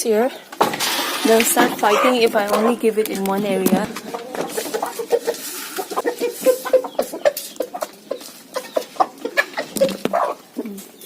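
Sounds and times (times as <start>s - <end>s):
chickens clucking: 0.0s - 11.0s
birds pecking taps: 0.6s - 4.9s.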